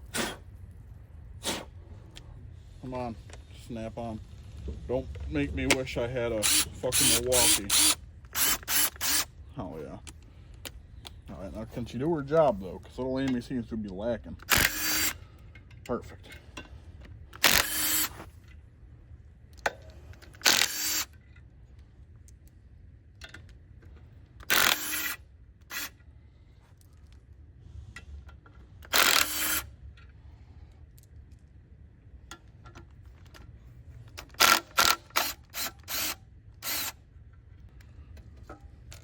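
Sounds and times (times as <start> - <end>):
cordless power ratchet running: 6.3 - 9.3, 14.4 - 15.2, 17.4 - 18.2, 20.3 - 21.1, 24.4 - 26.0, 28.9 - 29.7, 34.2 - 37.0.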